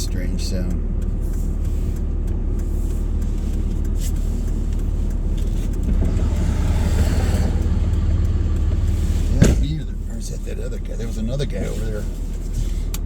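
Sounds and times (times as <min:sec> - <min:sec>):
vehicle driving rumble from cab: 0:00.0 - 0:13.0.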